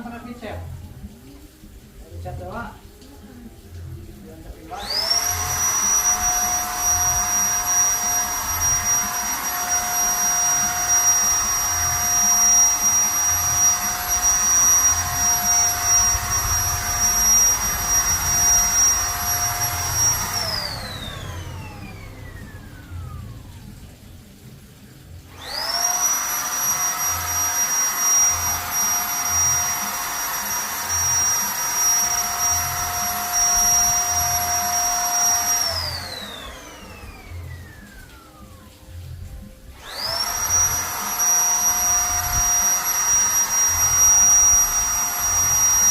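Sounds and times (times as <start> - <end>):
paint spray gun motor whining: 4.7 - 23.8, 25.2 - 38.8, 39.7 - 45.9.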